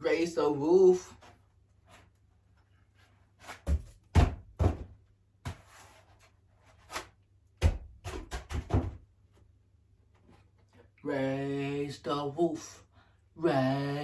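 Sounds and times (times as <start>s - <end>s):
dull thumps and knocks: 3.7s - 5.7s, 7.6s - 9.0s.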